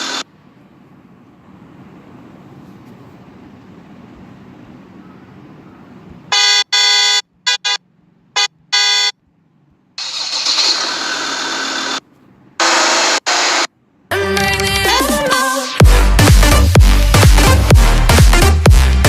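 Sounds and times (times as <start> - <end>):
car horn honking: 6.3 - 9.2.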